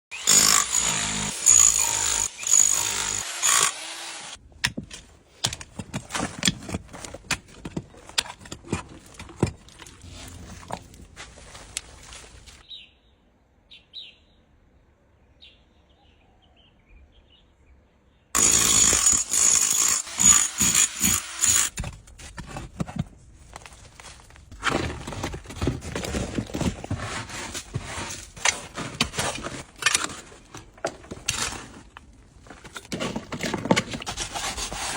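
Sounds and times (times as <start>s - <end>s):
power tool whining: 0.1s - 4.4s, 18.4s - 21.7s
scraping and knocking: 4.7s - 12.6s, 21.7s - 34.9s.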